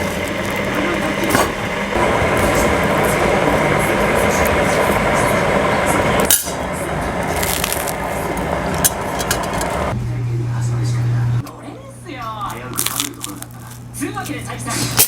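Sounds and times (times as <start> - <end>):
dishes and cutlery clinking: 0.8 - 1.8.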